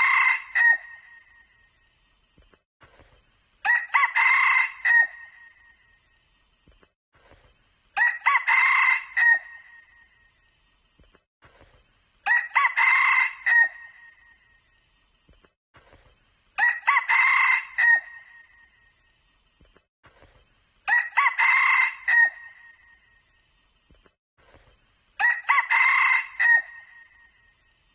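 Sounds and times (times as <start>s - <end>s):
rooster crowing: 0.0s - 1.0s, 3.6s - 5.4s, 8.0s - 9.7s, 12.3s - 13.9s, 16.6s - 18.3s, 20.9s - 22.7s, 25.2s - 27.1s.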